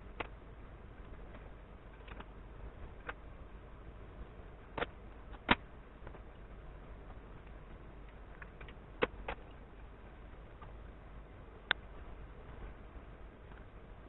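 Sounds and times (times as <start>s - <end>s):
low steady hum: 0.0s - 14.0s
sharp clicks and knocks: 4.7s - 6.4s, 7.4s - 9.6s.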